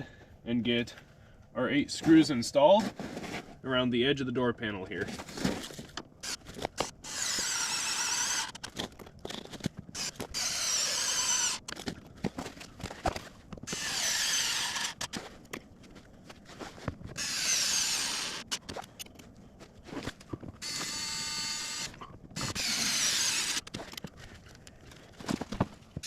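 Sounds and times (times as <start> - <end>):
electric screwdriver whirring: 6.2 - 8.7, 10.0 - 11.8, 13.7 - 15.2, 17.2 - 19.0, 20.6 - 23.9.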